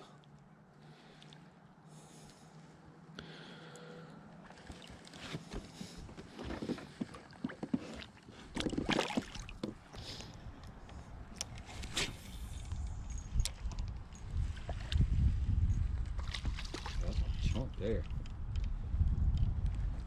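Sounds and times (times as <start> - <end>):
water rustling washes: 4.4 - 10.4, 16.1 - 17.9
wind rumble on microphone: 10.4 - 20.0.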